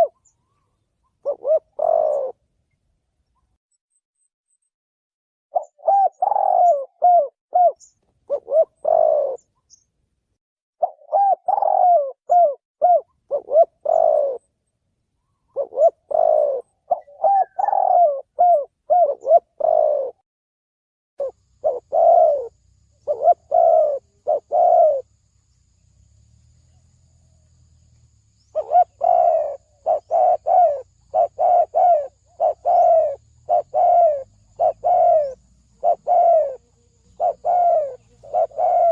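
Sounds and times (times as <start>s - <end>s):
dove cooing: 0.0s - 2.4s, 5.5s - 9.5s, 10.8s - 14.5s, 15.5s - 20.2s, 21.2s - 25.1s, 28.5s - 38.9s.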